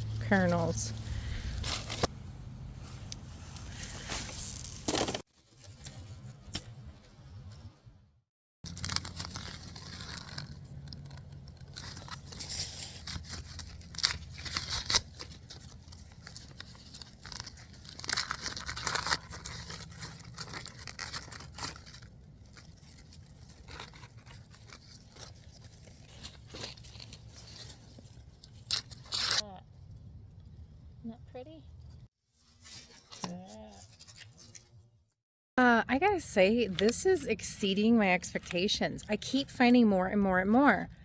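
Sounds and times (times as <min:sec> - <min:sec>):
dry corn husks tearing and rustling: 0:02.8 - 0:06.0, 0:08.7 - 0:29.5, 0:32.5 - 0:34.8.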